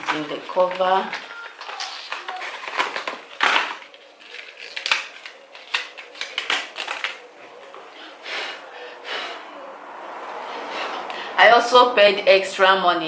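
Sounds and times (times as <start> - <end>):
plastic crackling rustles: 0.0 - 7.9.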